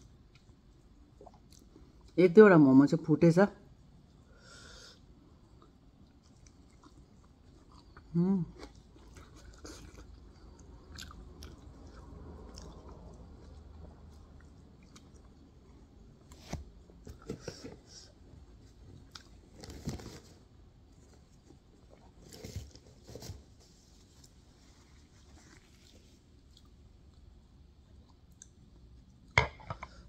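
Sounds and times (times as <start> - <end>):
person chewing soft wet food: 0.0 - 2.2, 3.9 - 19.7, 20.5 - 22.8, 24.1 - 29.4.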